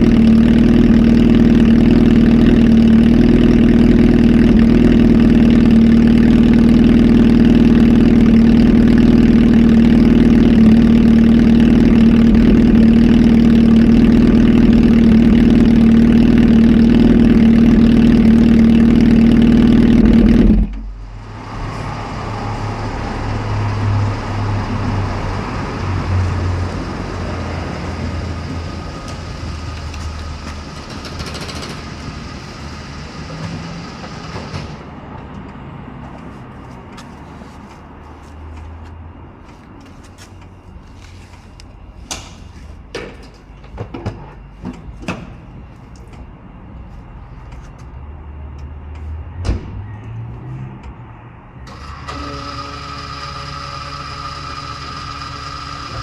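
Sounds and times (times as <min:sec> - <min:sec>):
motorcycle engine running loud: 0:00.0 - 0:20.7.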